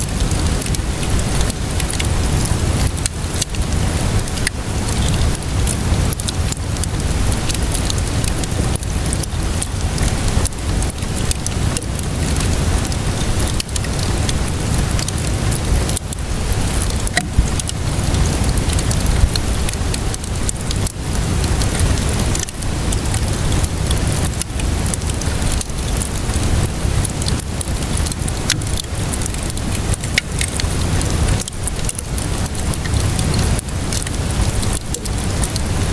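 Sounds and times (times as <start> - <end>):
rainfall hiss: 0.0 - 35.9
wood fire crackling and popping: 0.0 - 35.9
low rumble: 14.4 - 20.8.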